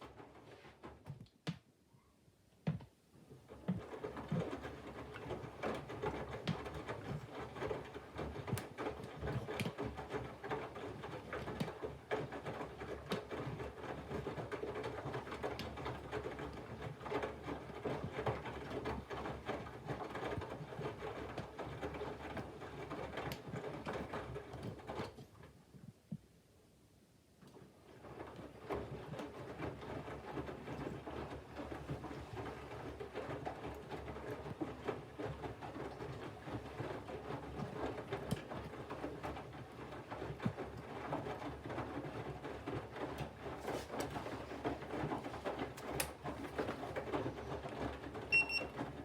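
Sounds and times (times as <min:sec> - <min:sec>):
laundry and water sloshing: 0:28.0 - 0:48.8.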